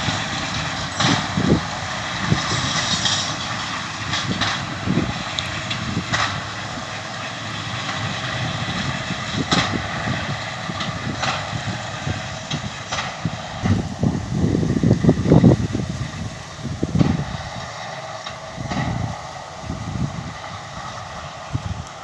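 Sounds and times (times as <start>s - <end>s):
tractor engine: 0.0s - 22.0s.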